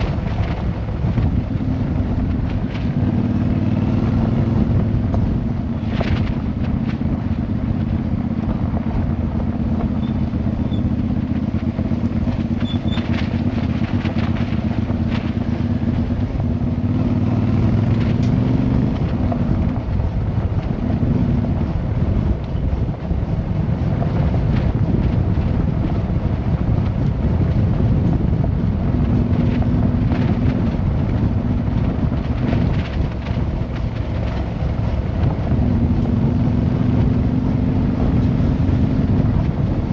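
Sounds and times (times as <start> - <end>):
motorcycle engine running: 0.0 - 39.9
road noise: 0.0 - 39.9
wind noise: 0.0 - 39.9.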